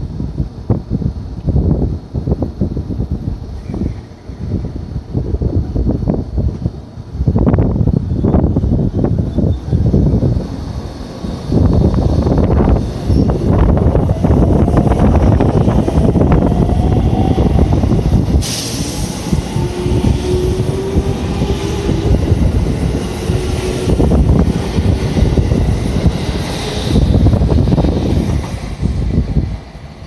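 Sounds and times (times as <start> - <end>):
hiss: 14.7 - 30.0.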